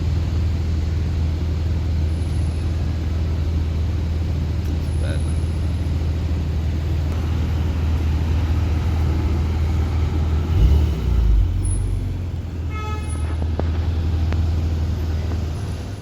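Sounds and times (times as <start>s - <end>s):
car engines in street traffic: 0.0s - 16.0s
car horn toot: 12.6s - 13.5s.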